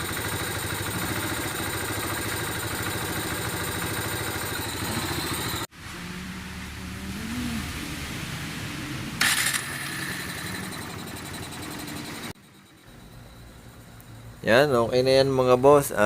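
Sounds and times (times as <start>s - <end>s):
motorcycle engine idling: 0.0s - 5.7s, 9.2s - 15.4s
quiet steady hum: 5.8s - 16.0s.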